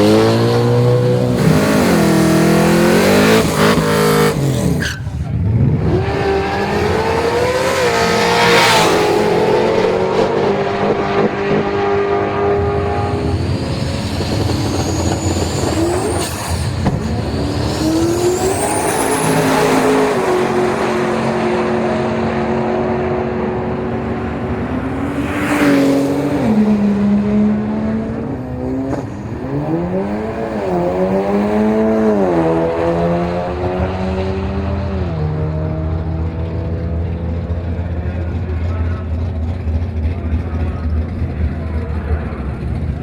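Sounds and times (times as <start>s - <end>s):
racing car engine accelerating: 0.0s - 43.0s
loud whoosh: 6.4s - 21.6s
high-pitched whines: 8.8s - 21.6s.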